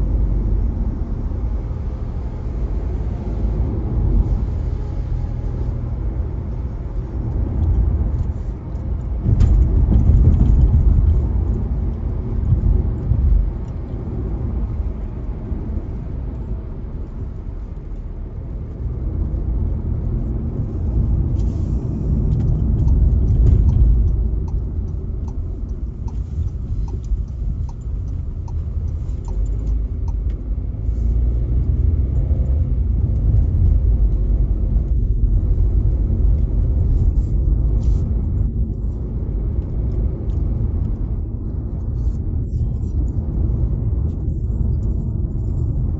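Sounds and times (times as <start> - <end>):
engine and tyre rumble: 0.0 - 45.9
light evenly spaced ticks: 22.3 - 30.6.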